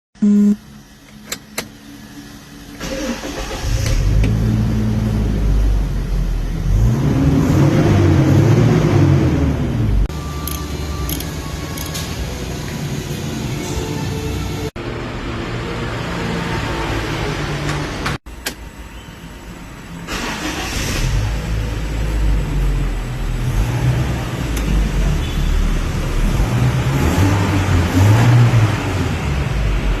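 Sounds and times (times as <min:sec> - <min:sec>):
car engine starting and revving: 0:01.4 - 0:12.6, 0:20.0 - 0:30.0.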